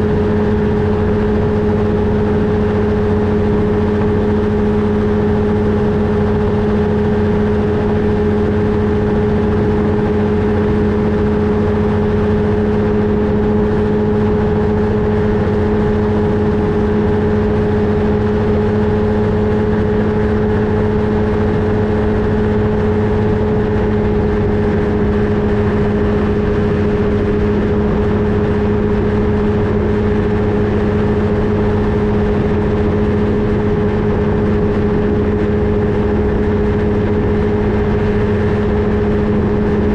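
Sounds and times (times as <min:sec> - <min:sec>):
ultralight aircraft engine droning: 0:00.0 - 0:39.9.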